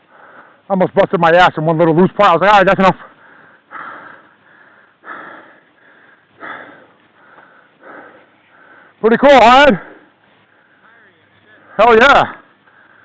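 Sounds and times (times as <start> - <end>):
person breathing hard: 0.0 - 0.7, 3.0 - 9.0, 9.7 - 10.9, 11.6 - 13.0.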